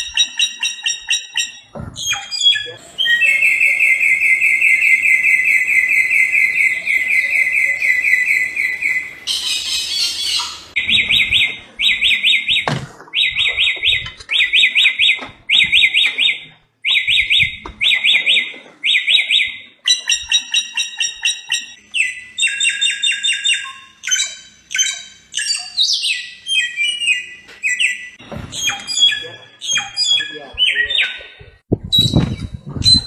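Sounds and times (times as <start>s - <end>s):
songbird singing: 0.0s - 33.0s.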